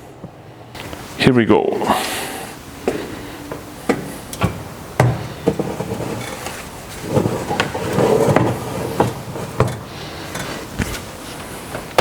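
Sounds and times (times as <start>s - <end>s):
metal rack scraping: 3.9s - 11.8s.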